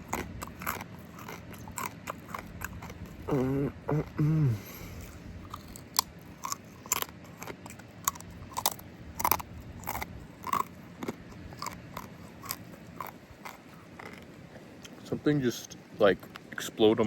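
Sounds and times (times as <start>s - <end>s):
mouth clicks: 0.0s - 7.1s
chewing and crunching food: 0.0s - 17.0s.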